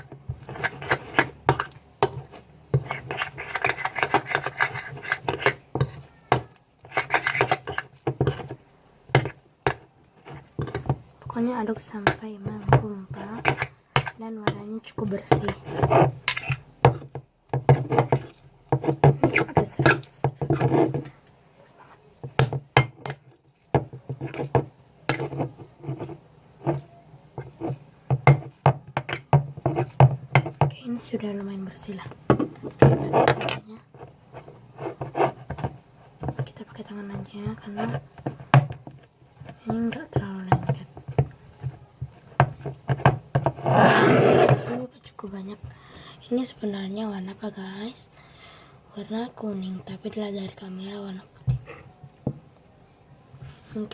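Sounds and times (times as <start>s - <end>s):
utensil scraping a container: 0.0s - 8.6s, 10.2s - 17.1s, 17.7s - 21.2s, 24.0s - 27.8s, 32.6s - 40.8s, 41.6s - 44.9s
slime being stirred: 0.0s - 21.2s, 21.8s - 32.0s, 32.6s - 44.9s.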